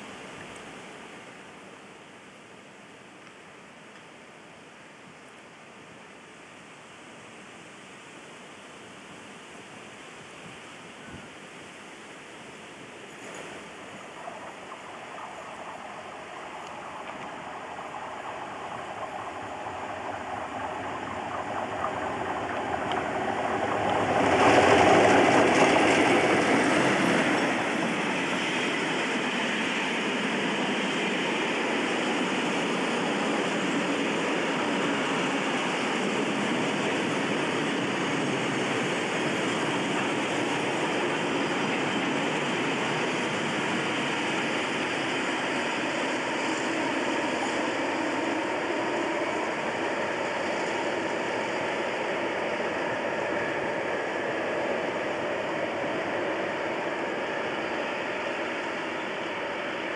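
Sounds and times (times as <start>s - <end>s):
diesel locomotive passing: 11.5s - 59.9s.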